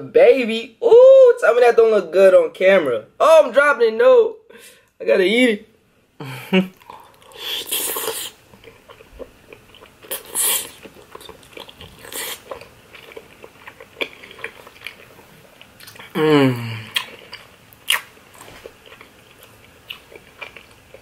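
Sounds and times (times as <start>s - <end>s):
wet chewing sounds: 6.8s - 16.2s, 16.8s - 21.0s.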